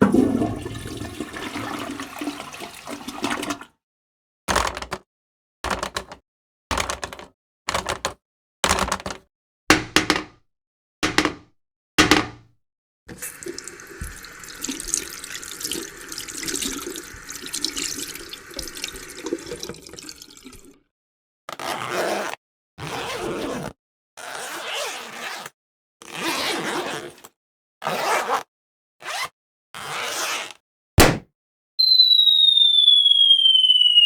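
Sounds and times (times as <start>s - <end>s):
tap water running into sink: 0.0s - 3.7s, 13.1s - 20.8s
short sharp sounds: 31.0s - 31.2s.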